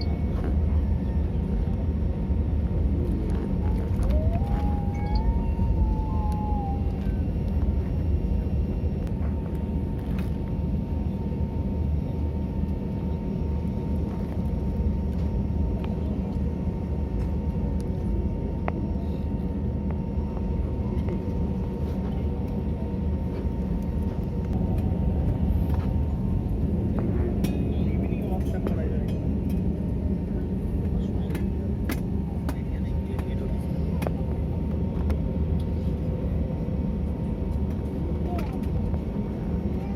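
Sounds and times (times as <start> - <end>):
airliner engine rumble: 0.0 - 39.9
brief wavering whine: 3.6 - 7.6.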